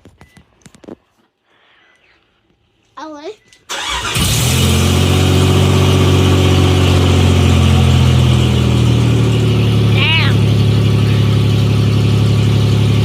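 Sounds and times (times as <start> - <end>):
car engine starting and idling: 3.7 - 13.0.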